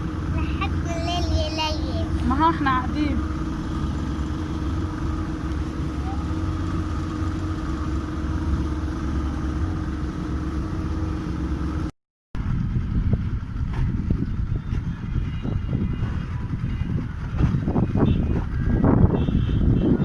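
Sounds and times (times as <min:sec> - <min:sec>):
boat engine rumbling: 0:00.0 - 0:20.0
engine knocks: 0:12.4 - 0:19.1.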